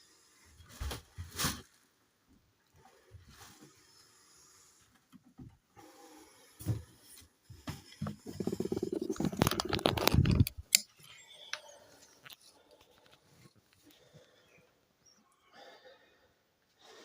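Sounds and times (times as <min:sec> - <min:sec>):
packaging crackling and rustling: 0:08.3 - 0:10.6.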